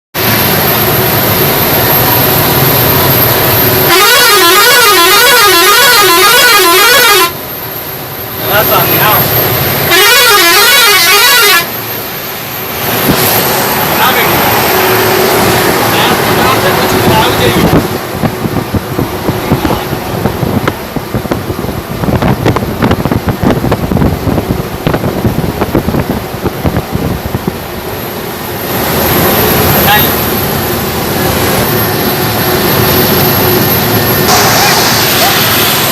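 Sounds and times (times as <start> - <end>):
road noise: 0.1 - 35.9
warbling horn: 3.4 - 7.5, 9.8 - 11.8
truck horn: 3.8 - 7.5, 9.8 - 11.8
wind buffeting microphone: 14.4 - 28.0.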